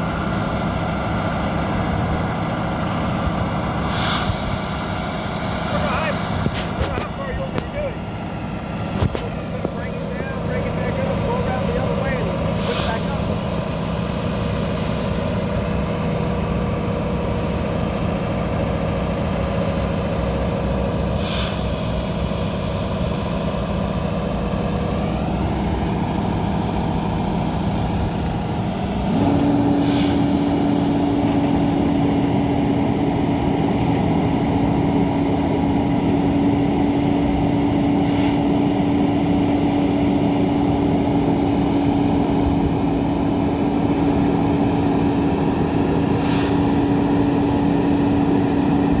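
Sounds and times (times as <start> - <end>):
steady whine: 0.0 - 49.0
truck diesel engine running: 0.0 - 49.0
brief hisses: 12.6 - 13.1, 46.2 - 46.8.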